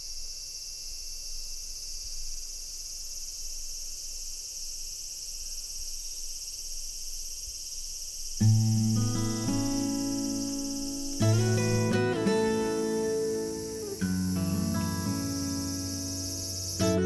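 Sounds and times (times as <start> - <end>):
insects shrilling: 0.0 - 17.0
strummed acoustic guitar music: 8.4 - 17.0.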